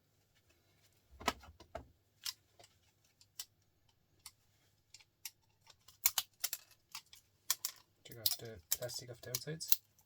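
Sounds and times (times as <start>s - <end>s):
small parts and screwdriver clicking: 2.2s - 10.0s.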